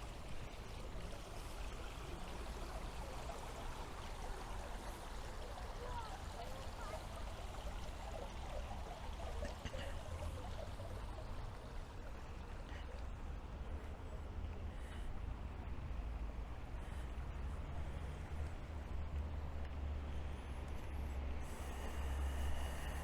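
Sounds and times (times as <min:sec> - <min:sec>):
water trickling: 0:00.0 - 0:14.2.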